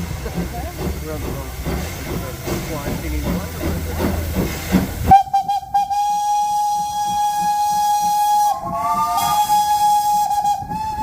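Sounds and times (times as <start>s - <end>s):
steam locomotive whistle: 5.1s - 11.0s.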